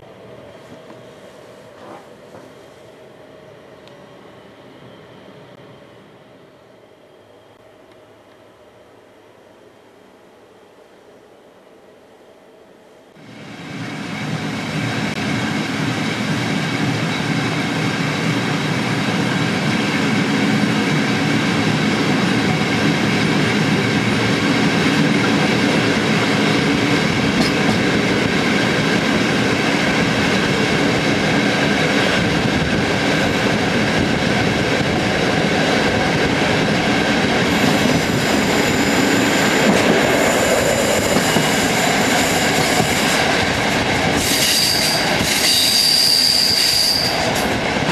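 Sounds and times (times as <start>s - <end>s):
train rumbling on rails: 0.0s - 9.1s, 13.1s - 47.9s
high-pitched wheel squeal: 44.3s - 47.2s.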